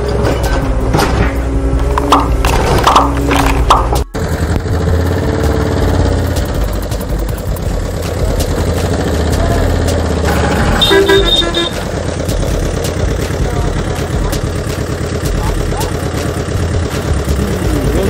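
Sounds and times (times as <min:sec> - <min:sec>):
truck engine running: 0:00.0 - 0:18.0
horn beeping: 0:10.2 - 0:12.0.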